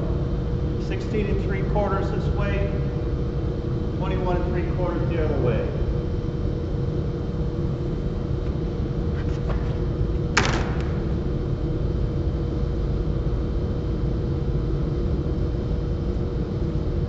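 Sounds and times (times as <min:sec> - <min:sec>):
low rumble and hum: 0:00.0 - 0:17.0
sharp knock: 0:10.4 - 0:11.0.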